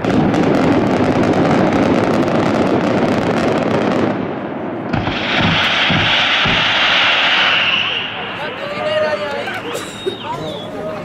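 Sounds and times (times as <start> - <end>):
fireworks crackling: 0.0 - 11.0
firework fountains hissing: 5.0 - 11.0.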